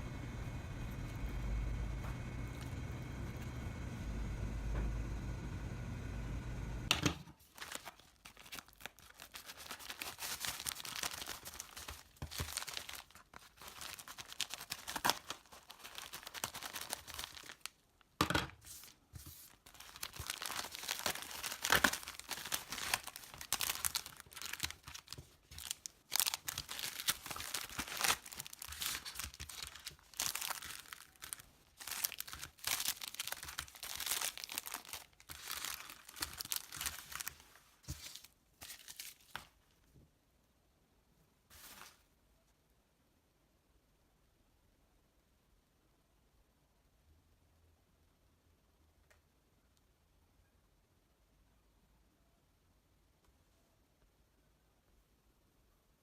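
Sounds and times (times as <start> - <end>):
plastic packaging crinkling and tearing: 7.4 - 17.8, 18.7 - 39.6.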